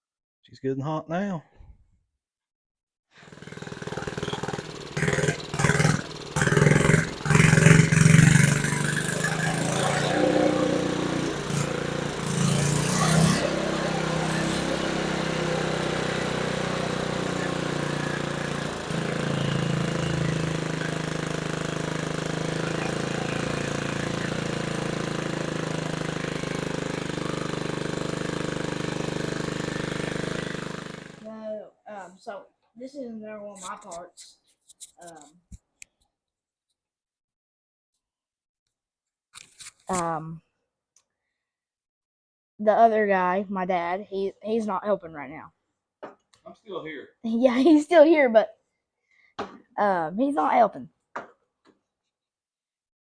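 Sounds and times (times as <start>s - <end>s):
small mower engine running: 3.2s - 31.4s.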